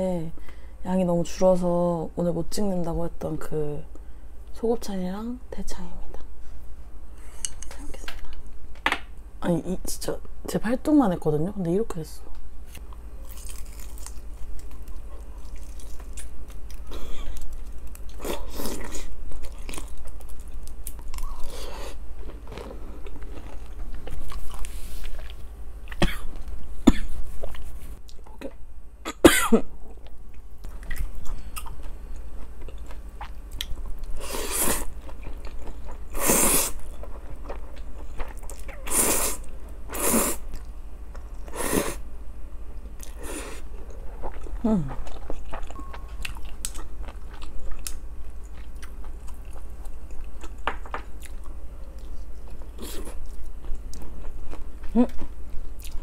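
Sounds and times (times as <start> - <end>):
chewing grilled meat: 12.8 - 26.0, 30.0 - 41.5, 43.0 - 56.0.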